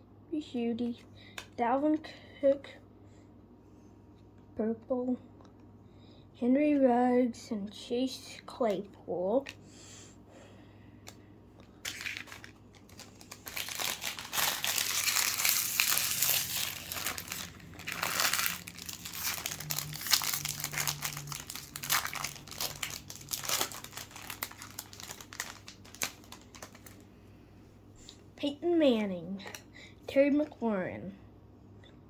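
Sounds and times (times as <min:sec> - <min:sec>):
handling of cards: 0:11.0 - 0:27.0
plastic foil wrapper crinkling: 0:11.6 - 0:27.1.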